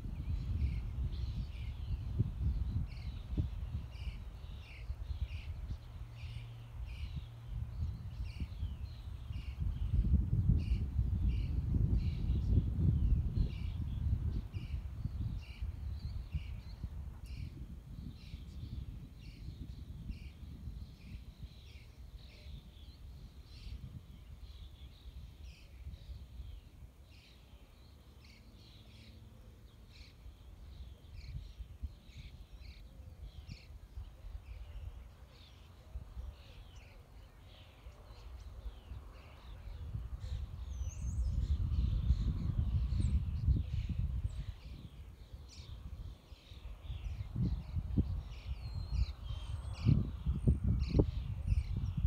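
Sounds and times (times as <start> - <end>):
wind rumble on microphone: 0.0 - 29.0, 29.9 - 52.0
small birds chirping: 0.0 - 52.0.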